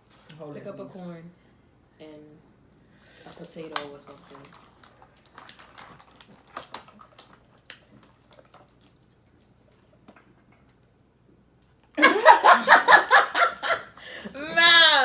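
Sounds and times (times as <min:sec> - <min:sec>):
loud laughter: 0:12.0 - 0:15.0.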